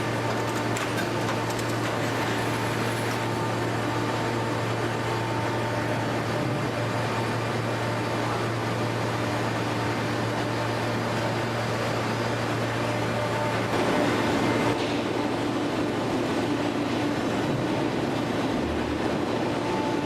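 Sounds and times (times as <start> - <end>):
baler motor and hydraulic pump: 0.0 - 15.2.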